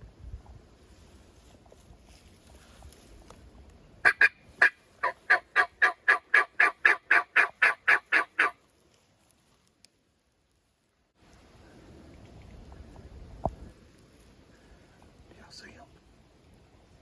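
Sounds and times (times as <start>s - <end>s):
turkey yelps: 4.0s - 8.6s.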